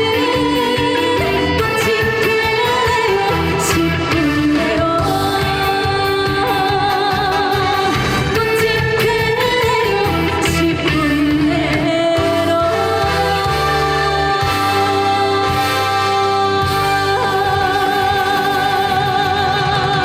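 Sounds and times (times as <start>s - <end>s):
backing track with bass line: 0.0s - 20.0s
woman singing: 0.0s - 20.0s.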